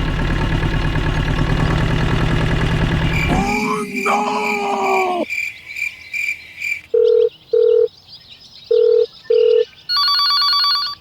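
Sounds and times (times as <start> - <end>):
telephone ringing tone: 7.0 - 7.9, 8.7 - 11.0.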